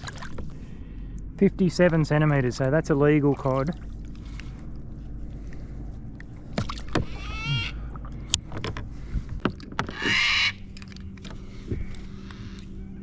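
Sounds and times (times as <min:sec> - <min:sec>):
steady low hum: 0:00.0 - 0:13.0
brief wavering tone: 0:07.1 - 0:07.9.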